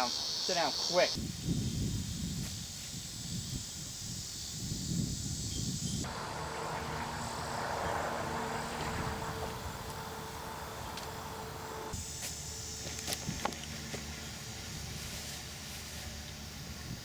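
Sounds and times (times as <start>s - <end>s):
insects chirping: 0.0s - 17.0s
low uneven rumble: 6.0s - 12.0s
mechanical drone with low hum: 8.6s - 17.0s.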